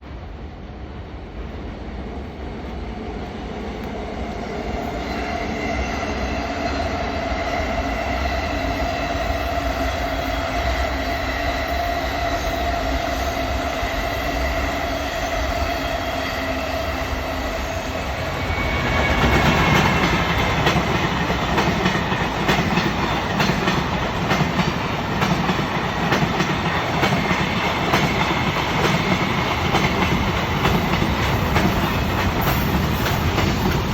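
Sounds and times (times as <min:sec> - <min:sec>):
train wheels clicking over rail joints: 0:19.0 - 0:33.9.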